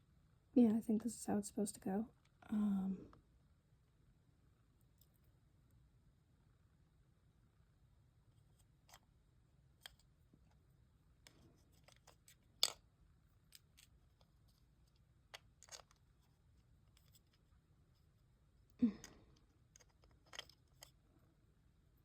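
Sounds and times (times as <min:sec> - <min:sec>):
plastic toy parts clicking: 0:11.3 - 0:12.8, 0:15.3 - 0:16.0, 0:19.4 - 0:21.0.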